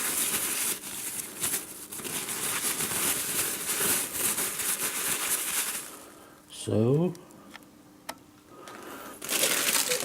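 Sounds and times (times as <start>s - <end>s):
plastic bags crinkling: 0.0s - 6.1s, 9.1s - 10.0s.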